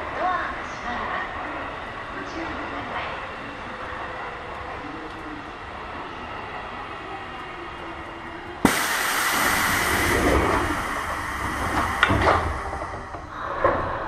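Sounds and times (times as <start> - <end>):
electric train low hum: 0.0 - 14.0
compressed air hiss: 8.6 - 12.8.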